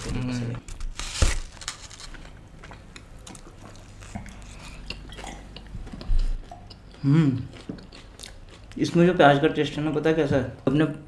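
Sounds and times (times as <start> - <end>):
quiet chewing: 2.1 - 9.0.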